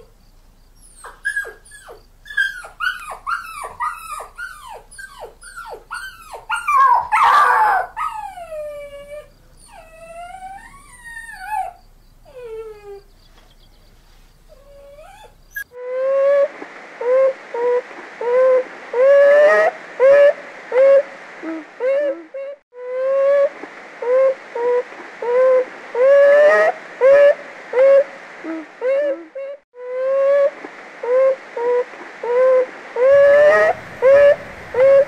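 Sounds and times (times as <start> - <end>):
marmots whistling calls: 33.1 - 35.0.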